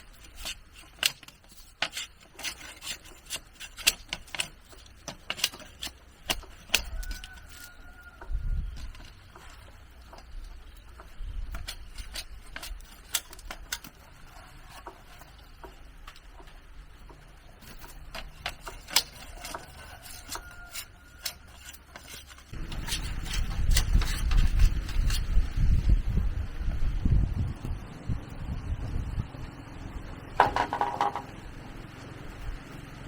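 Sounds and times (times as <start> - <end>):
wind buffeting microphone: 8.2 - 9.0, 22.5 - 30.4.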